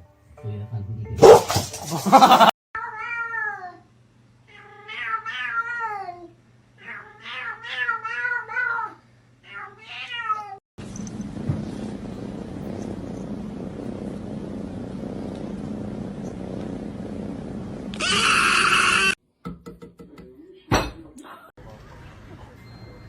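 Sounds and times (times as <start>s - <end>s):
cat meowing: 18.0s - 19.2s.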